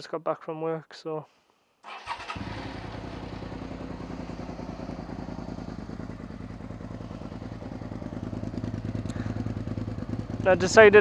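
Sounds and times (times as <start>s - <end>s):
motorcycle engine idling: 1.9s - 11.0s.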